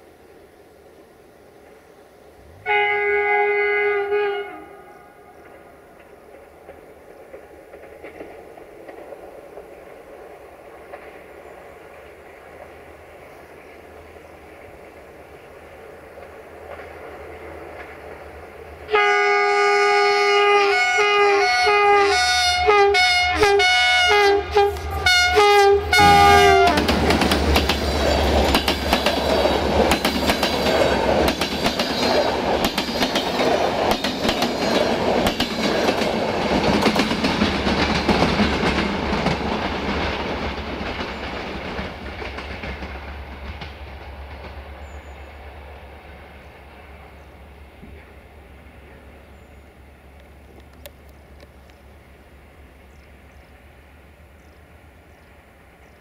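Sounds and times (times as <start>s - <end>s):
locomotive horn blasts: 2.5s - 5.1s, 18.9s - 27.1s
train wheel clatter: 5.4s - 13.3s, 16.0s - 18.8s, 26.0s - 45.3s.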